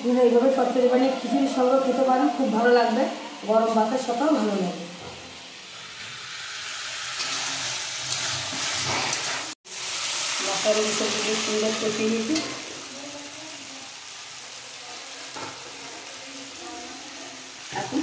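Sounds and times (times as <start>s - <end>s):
vegetables sizzling in oil: 0.0s - 18.0s
metal spatula stirring: 7.1s - 9.6s.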